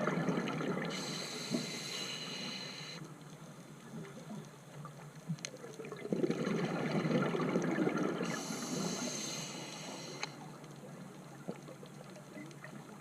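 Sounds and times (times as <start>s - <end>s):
exhaled bubbles gurgling: 0.0s - 3.0s, 5.6s - 10.5s
regulator inhale hiss: 0.9s - 3.1s, 8.2s - 10.5s.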